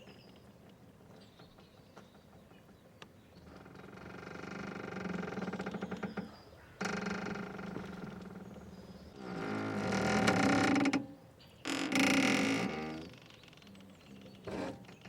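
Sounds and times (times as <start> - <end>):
boat rope creaking under strain: 3.4 - 15.0.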